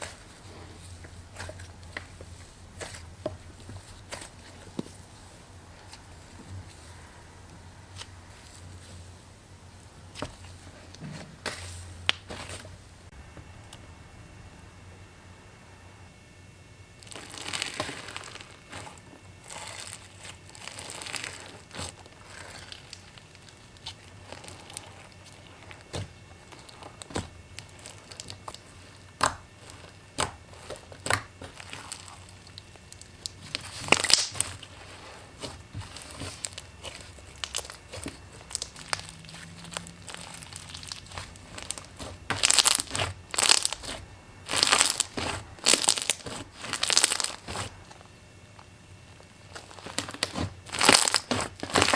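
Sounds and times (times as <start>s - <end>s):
material crinkling and crunching: 0.0s - 13.2s, 17.0s - 51.9s.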